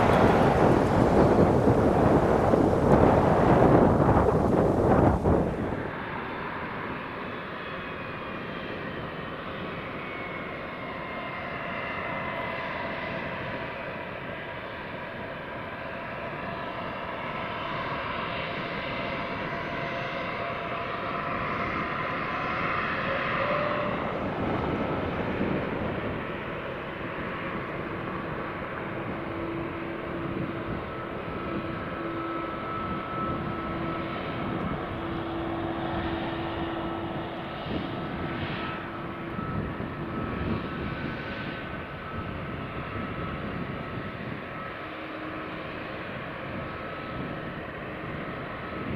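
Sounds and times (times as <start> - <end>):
faint whining tones: 0.0 - 5.9, 21.8 - 48.9
jet engines roaring: 0.0 - 48.9.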